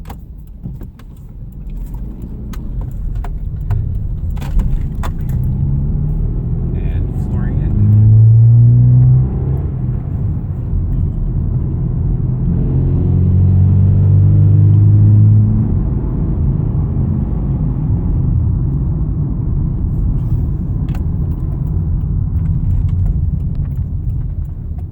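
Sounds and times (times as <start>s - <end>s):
car engine revving and idling: 0.0s - 24.9s.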